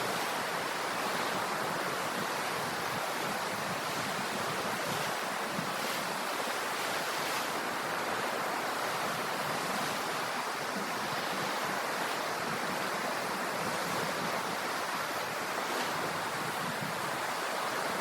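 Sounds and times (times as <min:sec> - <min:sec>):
ocean waves and surf: 0:00.0 - 0:18.0.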